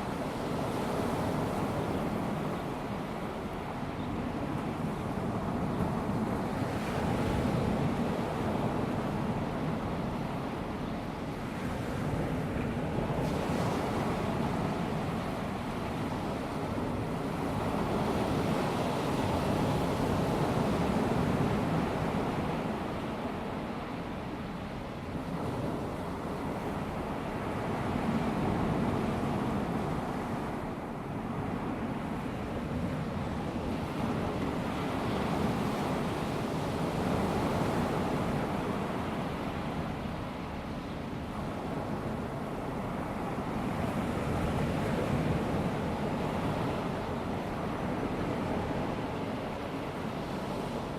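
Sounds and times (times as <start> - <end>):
small waves washing onto beach: 0.0 - 50.9.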